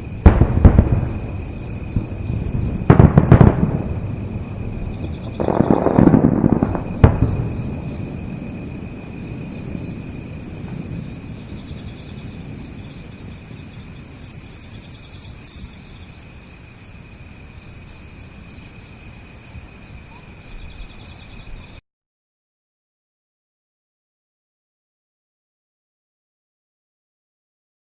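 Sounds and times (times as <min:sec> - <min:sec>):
firework shells booming: 0:00.0 - 0:14.1
insects chirring: 0:00.0 - 0:21.8.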